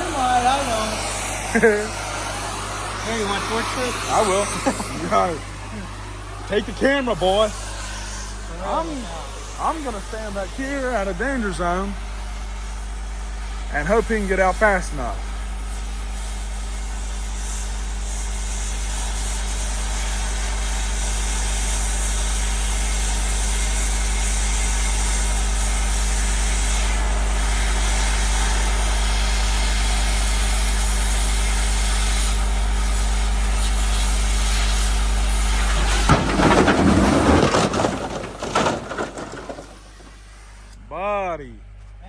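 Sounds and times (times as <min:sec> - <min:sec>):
engine running: 0:00.0 - 0:12.4, 0:32.4 - 0:40.9
cutting torch hissing: 0:00.0 - 0:36.6, 0:37.9 - 0:40.8
metallic crash and clatter: 0:35.0 - 0:40.7.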